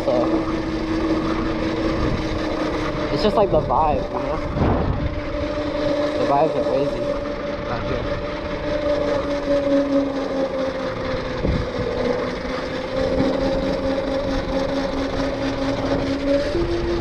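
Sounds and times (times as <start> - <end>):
electric motor whine: 0.0 - 17.0
road and wind noise: 1.2 - 9.2, 10.9 - 12.3.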